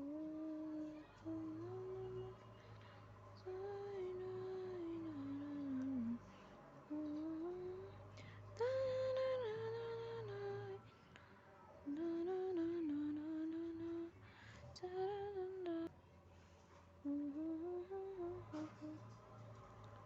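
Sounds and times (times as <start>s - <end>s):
person humming a slow tune: 0.0s - 2.5s, 3.4s - 6.3s, 6.9s - 8.0s, 11.9s - 14.2s, 14.8s - 15.9s, 17.0s - 19.1s.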